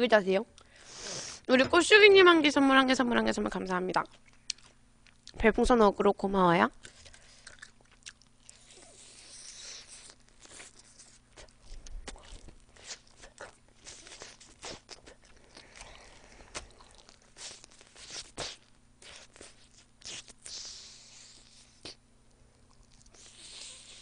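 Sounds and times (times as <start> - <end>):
chewing with crunches: 3.9 - 5.4, 6.8 - 24.0.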